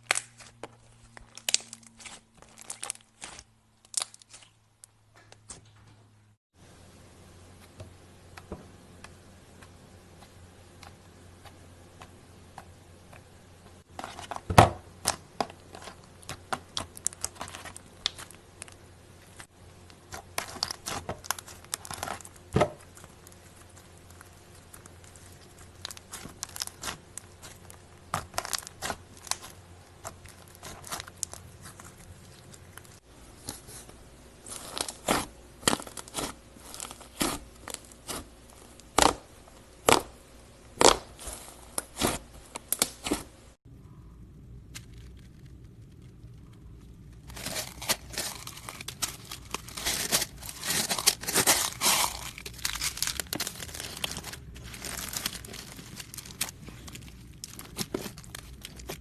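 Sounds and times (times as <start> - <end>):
slime squeezed crackling and popping: 0.0 - 4.6, 15.0 - 18.8, 19.4 - 33.0, 34.5 - 40.1, 44.6 - 59.0.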